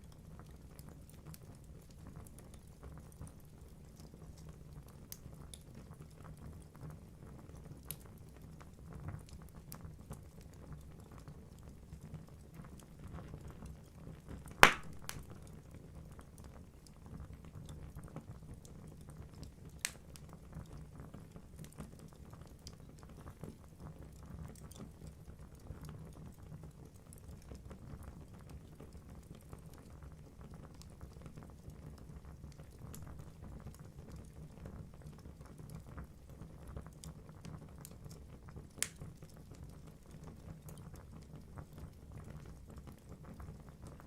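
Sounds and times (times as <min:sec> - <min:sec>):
logs burning and crackling: 0:00.0 - 0:25.9, 0:28.2 - 0:44.0
fire popping: 0:14.6 - 0:16.4, 0:32.6 - 0:34.2.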